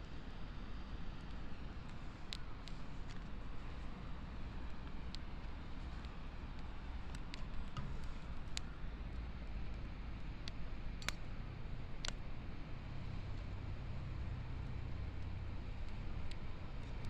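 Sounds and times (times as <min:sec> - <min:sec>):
low steady rumble: 0:00.0 - 0:17.0
bonfire crackling and popping: 0:01.2 - 0:17.0.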